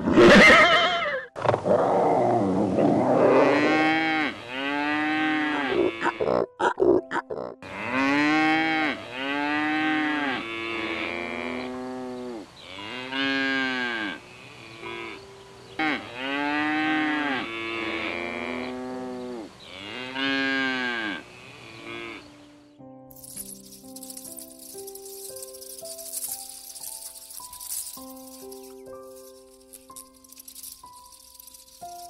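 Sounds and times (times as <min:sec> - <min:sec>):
cow mooing: 0:02.8 - 0:06.6, 0:07.3 - 0:15.2, 0:15.8 - 0:22.3.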